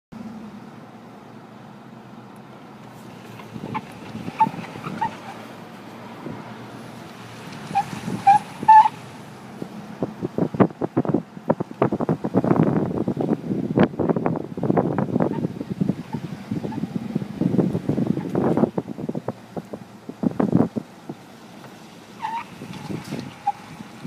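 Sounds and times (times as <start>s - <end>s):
short pitched squeaks: 3.3s - 5.4s.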